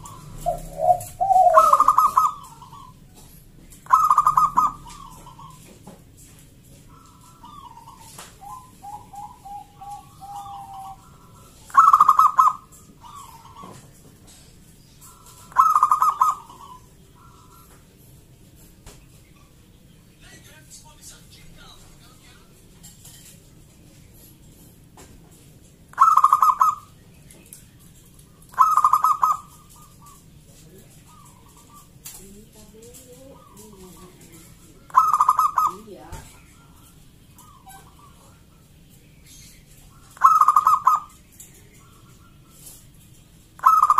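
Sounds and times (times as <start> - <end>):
dove cooing: 0.0 - 18.7, 25.8 - 27.0, 28.0 - 43.9.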